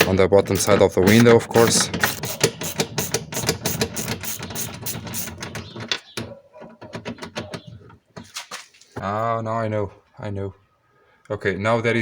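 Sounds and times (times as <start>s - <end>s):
hand ratchet clicking: 0.0s - 6.0s.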